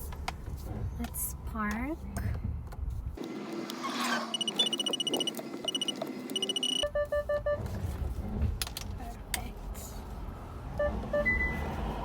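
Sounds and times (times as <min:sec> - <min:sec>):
parking sensor beeping: 0:04.3 - 0:07.7, 0:10.8 - 0:11.7.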